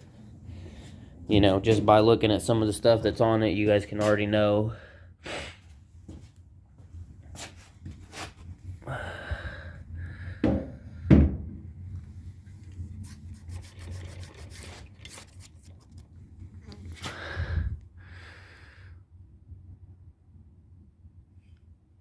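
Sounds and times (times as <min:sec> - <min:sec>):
low steady hum: 0:00.0 - 0:22.0
rubbing and handling noises: 0:07.2 - 0:08.8, 0:11.9 - 0:17.3.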